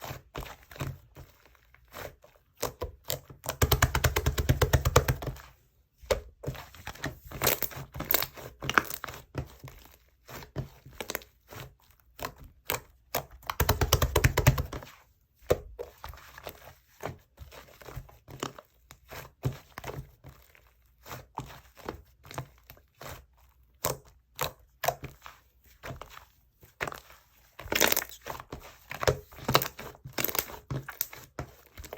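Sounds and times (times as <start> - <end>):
slime squeezed by hand: 27.7 - 28.3.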